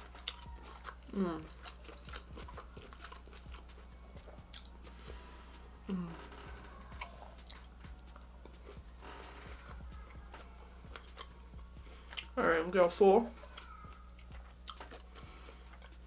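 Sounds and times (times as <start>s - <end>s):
chewing and mouth smacks: 0.0s - 4.8s, 14.2s - 16.0s.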